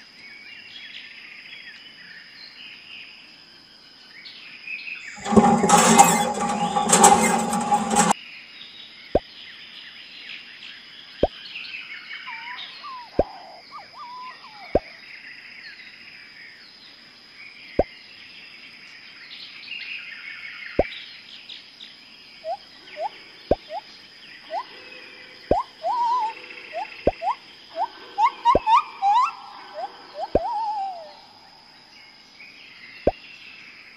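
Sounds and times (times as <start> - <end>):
loud rattling burst: 5.2 - 8.2
bird chirps: 12.2 - 15.0, 25.5 - 31.7.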